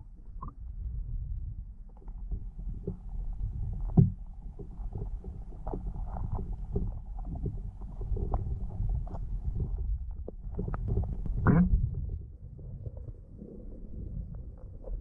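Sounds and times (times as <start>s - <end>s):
underwater rumble of moving water: 0.0s - 15.0s
small clicks and pops: 1.9s - 11.8s.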